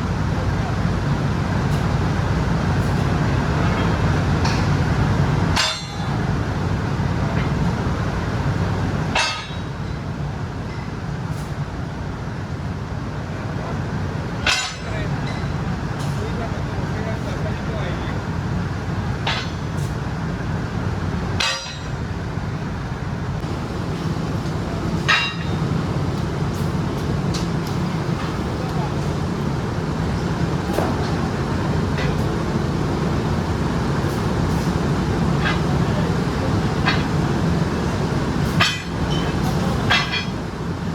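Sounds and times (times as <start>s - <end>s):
factory machinery rumbling: 0.0s - 40.9s
sharp metallic clanks: 23.4s - 29.5s, 38.4s - 40.4s.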